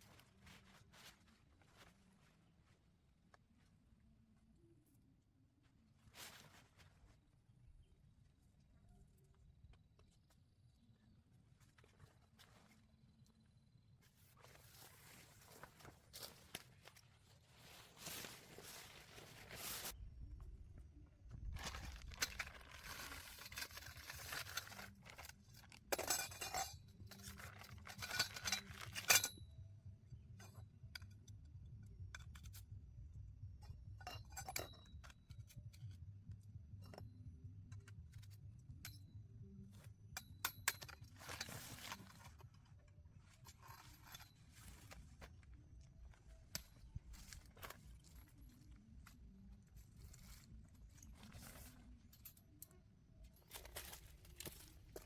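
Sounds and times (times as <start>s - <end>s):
rustling: 0.0s - 3.8s, 5.9s - 7.3s, 14.0s - 20.0s, 41.1s - 52.6s
cookware clinking and scraping: 25.9s - 29.3s.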